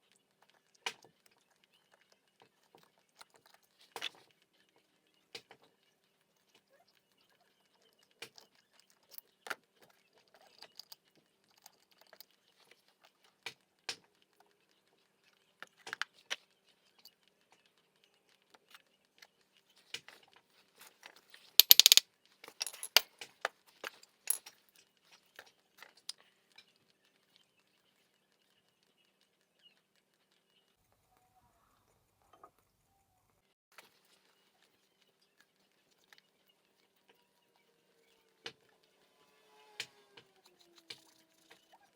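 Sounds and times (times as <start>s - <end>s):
metal tools clinking: 21.6s - 22.0s, 22.6s - 23.0s, 24.3s - 24.5s.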